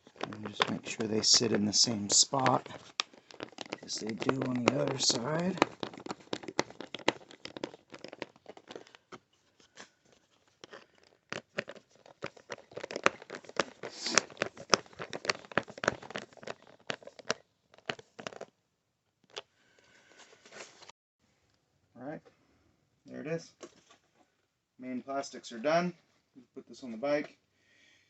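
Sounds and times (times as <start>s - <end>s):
plastic panels clicking and rattling: 0.0s - 9.0s
rustling: 0.0s - 18.5s.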